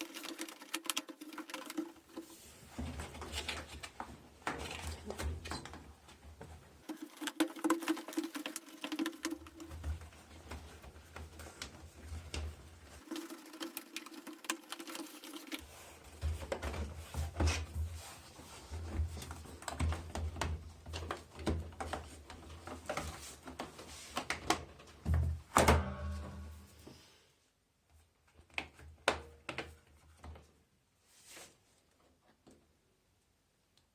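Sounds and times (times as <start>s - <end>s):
machine parts clicking and knocking: 0.0s - 2.2s, 6.8s - 9.8s, 13.0s - 15.6s.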